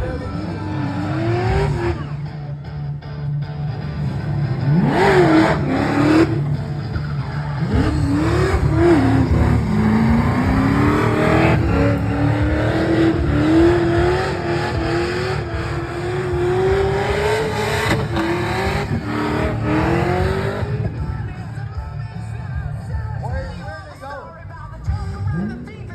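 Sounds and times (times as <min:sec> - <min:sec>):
car engine revving high: 0:00.0 - 0:02.6, 0:03.5 - 0:21.5
tyres screeching: 0:04.7 - 0:21.1.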